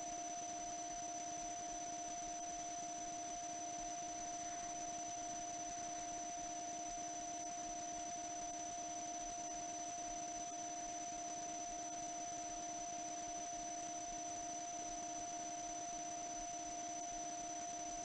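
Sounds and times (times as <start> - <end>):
electronic hum and hiss: 0.0 - 18.0.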